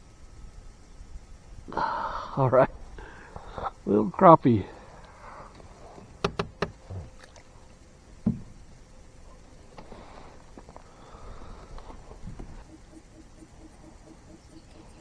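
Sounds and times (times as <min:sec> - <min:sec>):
faint water sounds: 0:00.0 - 0:15.0
small knocks: 0:06.0 - 0:07.5, 0:08.2 - 0:08.9
loud thump on kayak hull: 0:06.2 - 0:07.0, 0:08.2 - 0:08.8.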